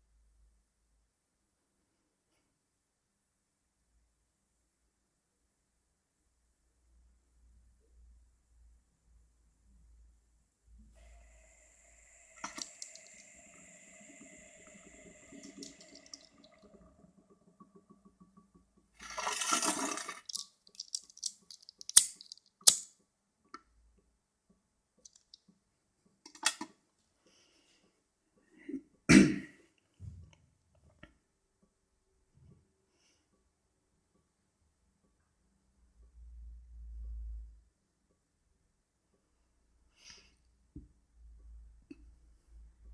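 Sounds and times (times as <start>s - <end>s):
water bubbling: 11.0s - 20.9s.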